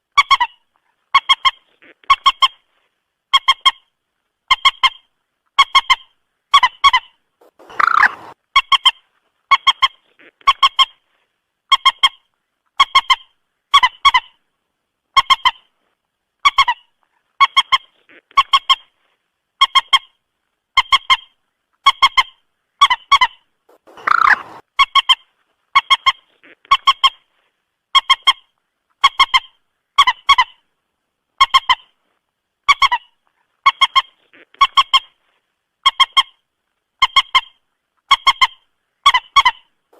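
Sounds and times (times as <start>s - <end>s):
long rough bird call: 7.4s - 8.4s, 23.8s - 24.6s
moorhen honking calls: 7.4s - 8.4s, 23.7s - 24.6s.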